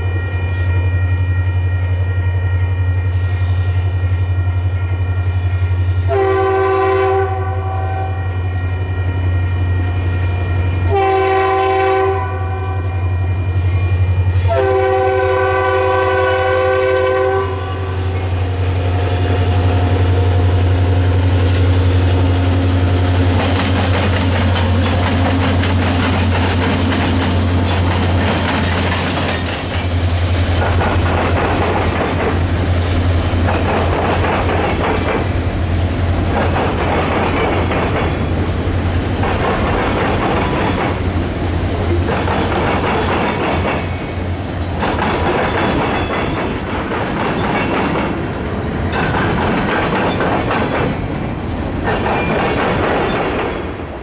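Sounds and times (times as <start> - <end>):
locomotive air horn: 0.0 - 13.7, 14.3 - 18.4
wheels clattering over rail joints: 23.3 - 32.6.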